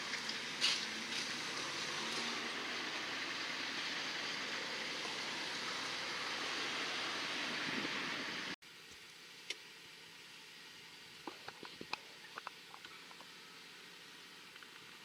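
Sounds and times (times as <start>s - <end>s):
train rolling past: 0.0s - 8.6s.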